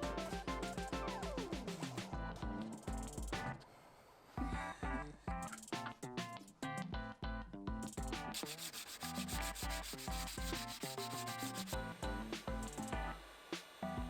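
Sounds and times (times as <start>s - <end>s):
background music with bass beat: 0.0s - 3.6s, 4.4s - 14.0s
sanding scratching: 8.3s - 11.8s.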